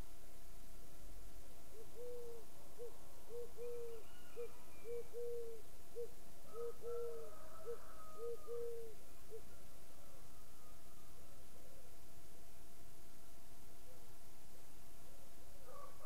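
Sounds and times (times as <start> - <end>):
faint higher bird calls: 1.7 - 11.2
bird hooting: 1.8 - 9.5.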